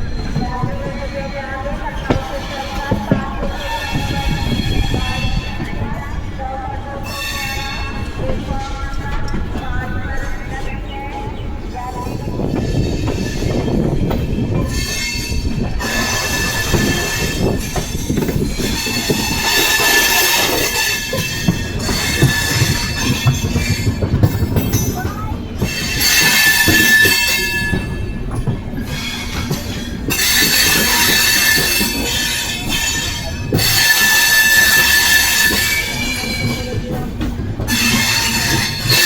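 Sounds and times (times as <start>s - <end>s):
train wheels rumbling on rails: 0.0s - 39.0s
high-pitched wheel squeal: 30.1s - 36.7s.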